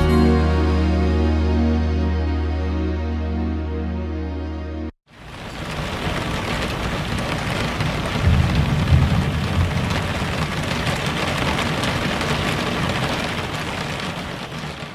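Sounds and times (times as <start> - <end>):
steady rain: 5.1 - 14.9
thunder rumble: 5.2 - 14.9.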